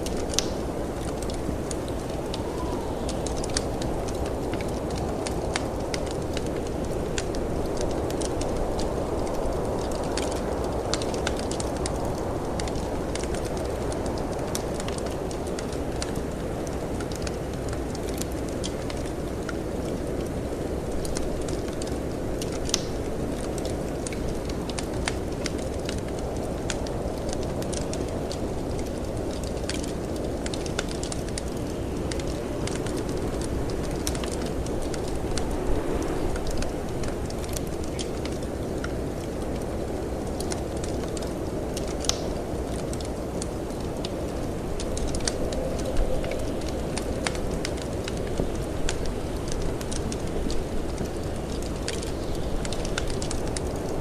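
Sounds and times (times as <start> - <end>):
low rush of wind: 0.0 - 54.0
wood fire crackling and popping: 0.0 - 54.0
storm wind rushing: 0.8 - 6.3, 31.8 - 39.5.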